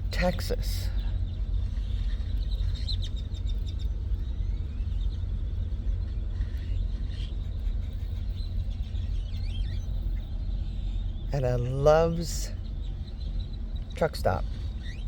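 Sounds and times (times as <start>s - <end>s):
steady low rumble: 0.0s - 15.0s
flock of birds chirping: 0.3s - 15.0s.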